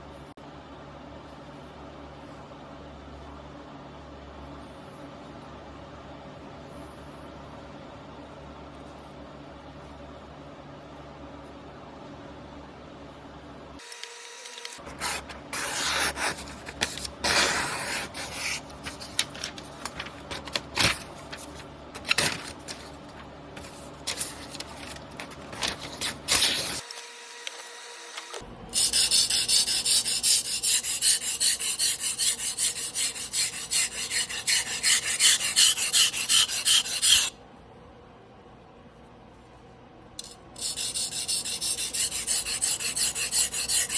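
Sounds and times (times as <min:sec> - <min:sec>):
knife blade scraping on whetstone: 0:28.8 - 0:37.3, 0:40.2 - 0:43.9.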